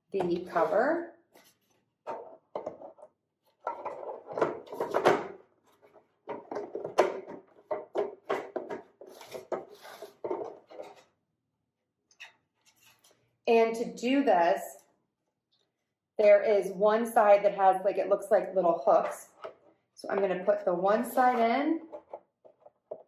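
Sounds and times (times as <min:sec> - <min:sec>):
plastic feeder parts knocking and clicking: 0:06.2 - 0:11.0.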